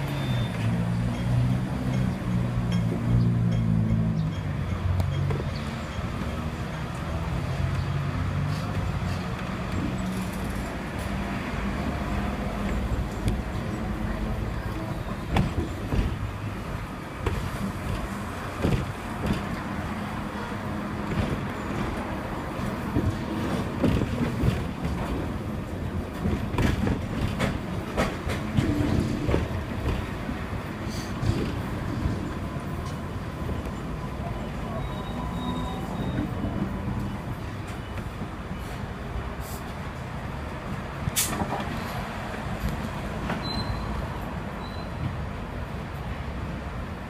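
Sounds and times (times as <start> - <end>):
road traffic: 0.0 - 47.0
tram motor hum and rumble: 0.0 - 47.0
wheels knocking on track: 15.2 - 33.6.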